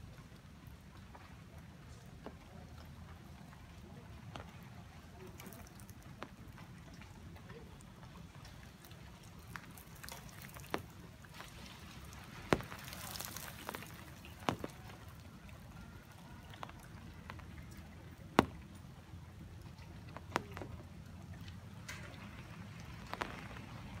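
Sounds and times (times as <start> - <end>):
rain patter: 0.0 - 24.0
large raindrops tapping: 8.6 - 24.0.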